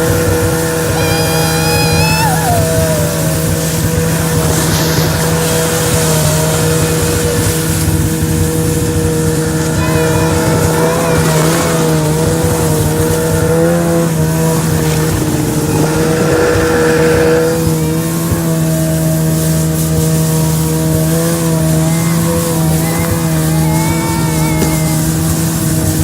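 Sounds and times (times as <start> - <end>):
snowmobile engine running: 0.0 - 26.0.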